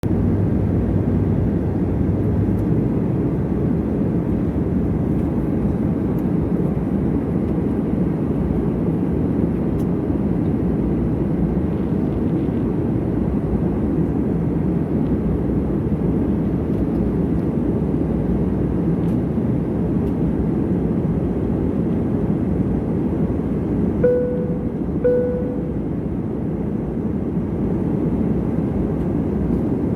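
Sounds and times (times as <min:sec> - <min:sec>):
vehicle running rumble: 0:00.0 - 0:08.8.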